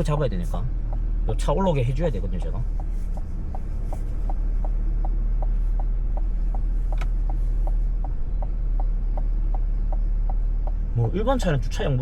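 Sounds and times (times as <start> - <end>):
car engine idling hum: 0.0 - 12.0
turn signal ticking: 0.0 - 12.0.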